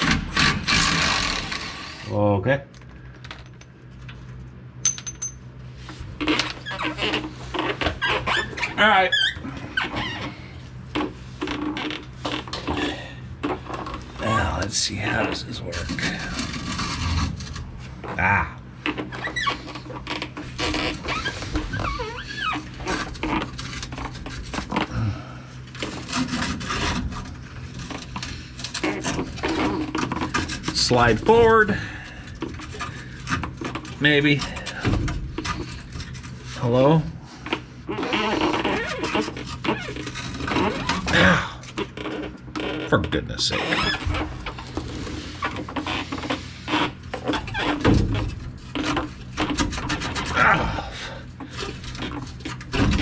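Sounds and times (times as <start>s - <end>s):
metal scraping and knocking: 4.8s - 5.5s.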